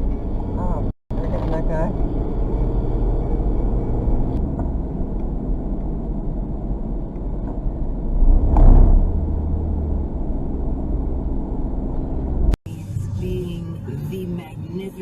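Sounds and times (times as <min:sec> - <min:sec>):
vehicle engine and road noise: 0:00.0 - 0:15.0
loud thump: 0:08.2 - 0:09.4.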